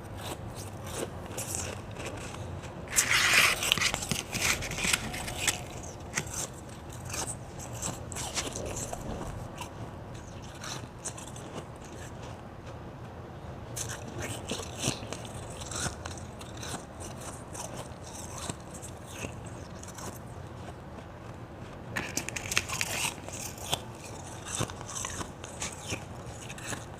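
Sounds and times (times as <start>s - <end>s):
person chewing ice: 0.0s - 12.8s, 13.7s - 26.9s.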